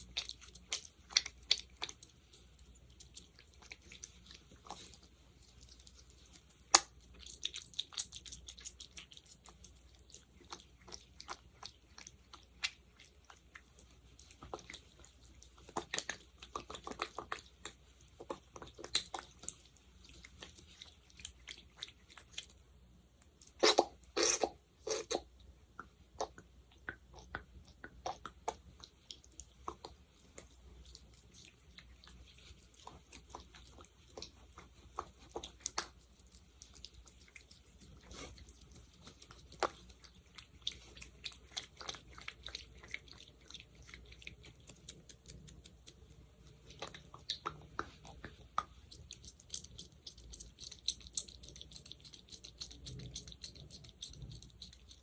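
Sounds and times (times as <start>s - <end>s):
fingers in sticky gel: 25.8s - 55.0s.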